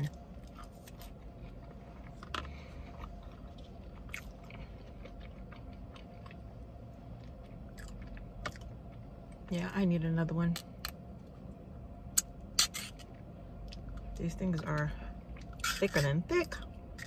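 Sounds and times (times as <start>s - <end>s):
person chewing food: 0.3s - 9.1s, 15.2s - 17.0s.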